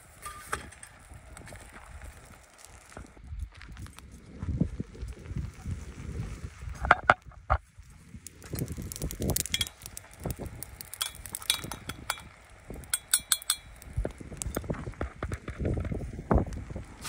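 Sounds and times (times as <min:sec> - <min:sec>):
metal utensil clinking on pot: 0:09.5 - 0:09.8, 0:11.0 - 0:13.8.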